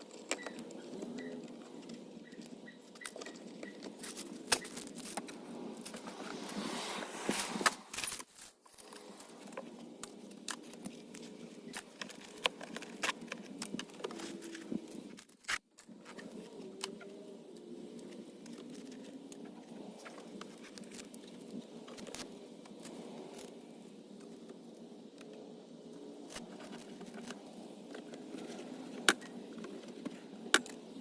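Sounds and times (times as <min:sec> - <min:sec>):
items clicking and rustling: 0:00.0 - 0:06.5, 0:07.3 - 0:17.0.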